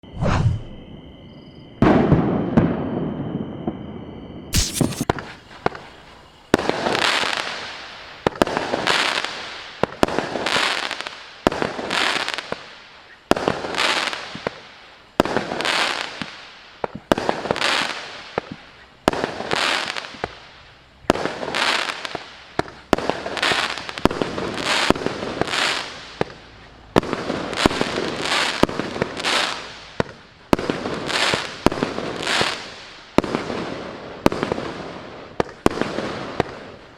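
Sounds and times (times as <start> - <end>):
fireworks cake bangs with crackle: 4.5 - 5.8, 21.1 - 26.4.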